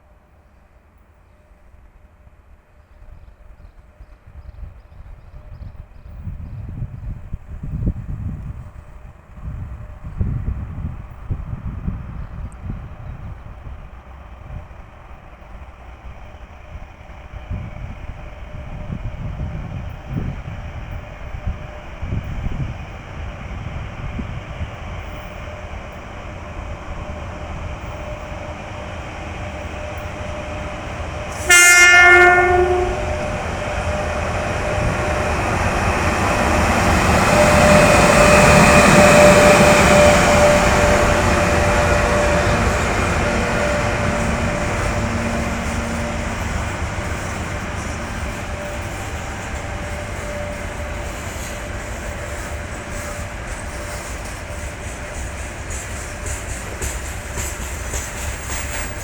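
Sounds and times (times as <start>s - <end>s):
freight train rumbling past: 0.0s - 59.0s
train horn blast: 29.8s - 55.2s.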